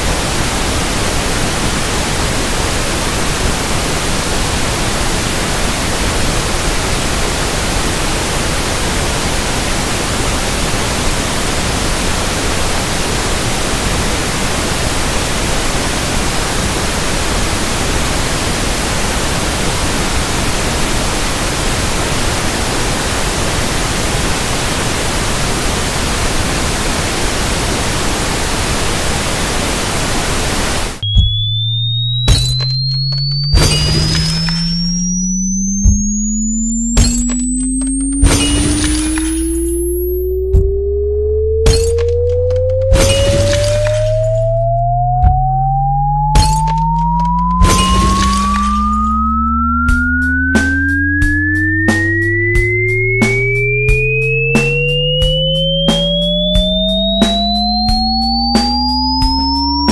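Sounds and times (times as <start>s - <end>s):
pink noise hiss: 0.0s - 31.1s
rising sine tone sweep: 30.8s - 59.9s
sharp clicks: 31.0s - 39.8s
steady low tone: 31.0s - 59.9s.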